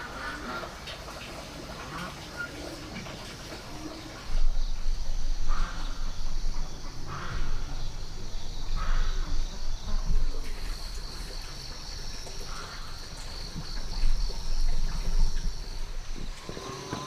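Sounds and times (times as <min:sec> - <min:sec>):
high-pitched insect chorus: 0:03.8 - 0:17.0
short insect calls: 0:03.8 - 0:17.0.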